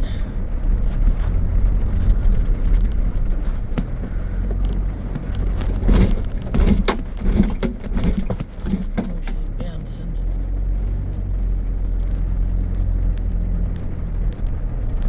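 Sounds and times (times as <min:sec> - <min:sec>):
engine and tyre rumble: 0:00.0 - 0:15.0
knocks and clicks: 0:00.9 - 0:09.6.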